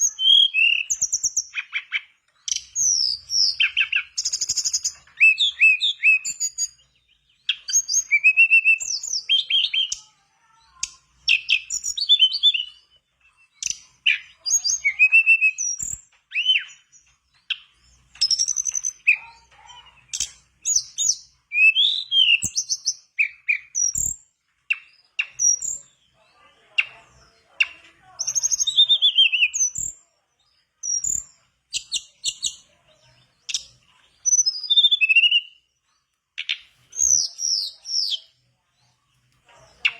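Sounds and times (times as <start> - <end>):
bird singing whistled phrases: 0.0 - 10.0, 10.8 - 16.9, 20.0 - 25.9, 28.2 - 30.0, 33.5 - 35.7, 36.4 - 38.4.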